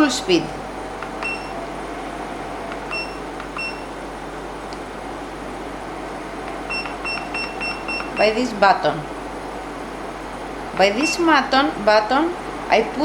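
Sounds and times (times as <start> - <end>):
air conditioner fan blowing: 0.0 - 13.0
short high beeps: 1.2 - 1.6, 2.9 - 3.9, 6.7 - 8.3.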